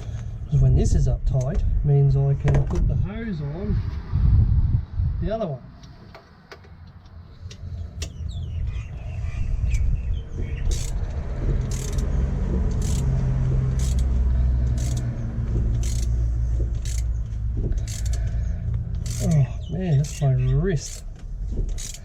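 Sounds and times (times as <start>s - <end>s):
vehicle engine rumbling: 0.0s - 22.0s
hand ratchet clicking: 10.6s - 22.0s.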